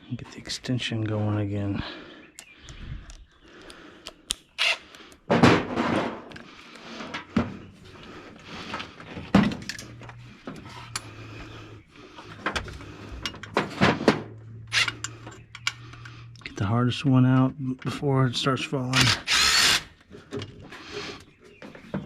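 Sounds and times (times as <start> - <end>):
ratchet working bolts: 14.7 - 16.1.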